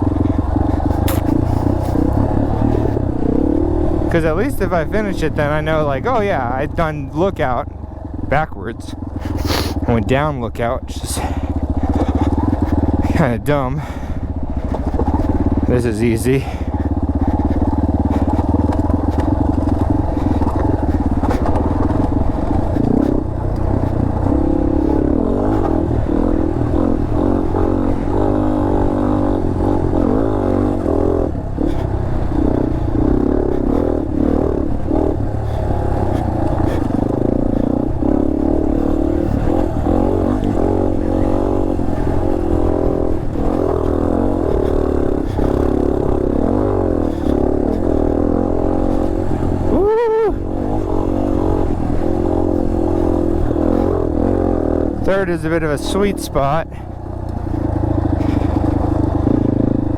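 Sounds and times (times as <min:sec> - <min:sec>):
knocks and clatter from riding: 0:00.0 - 0:04.0, 0:11.2 - 0:13.2, 0:13.8 - 0:15.7, 0:16.4 - 0:48.2, 0:56.8 - 0:59.9
dirt bike engine revving: 0:00.0 - 0:59.9.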